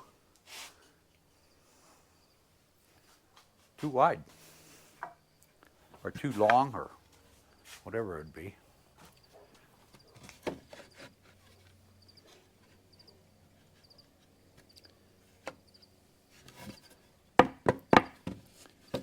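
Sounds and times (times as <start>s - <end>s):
wooden fence boards knocking: 6.2s - 6.7s, 17.4s - 19.0s.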